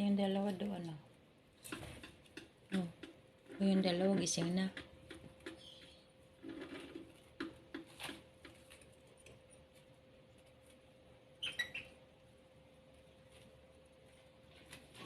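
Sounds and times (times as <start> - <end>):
squeaky bird chirps: 11.4 - 12.0.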